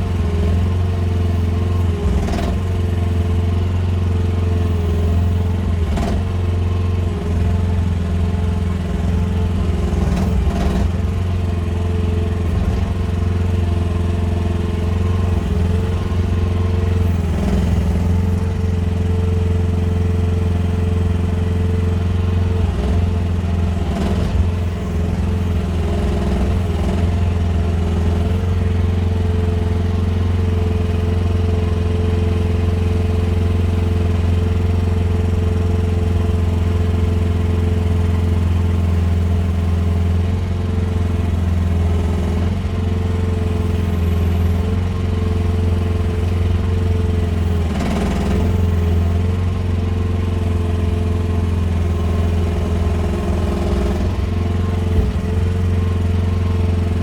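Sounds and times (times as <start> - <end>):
excavator engine running: 0.0 - 57.0
short clunks: 54.7 - 55.8.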